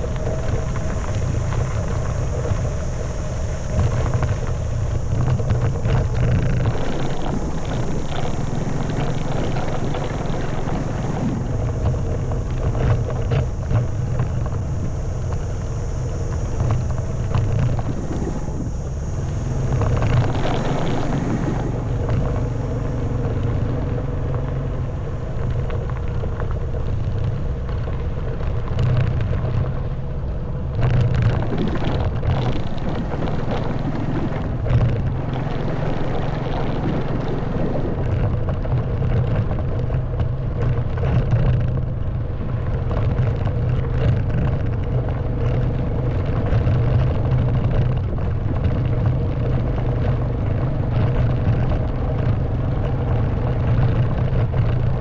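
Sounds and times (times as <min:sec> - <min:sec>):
motorbike engine running: 0:00.0 - 0:55.0
wind on microphone: 0:00.0 - 0:55.0.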